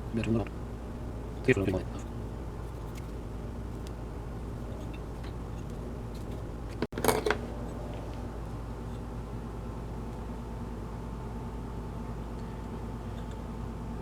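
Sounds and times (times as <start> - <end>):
steady low hum: 0.0 - 14.0
handling noise: 2.6 - 8.3.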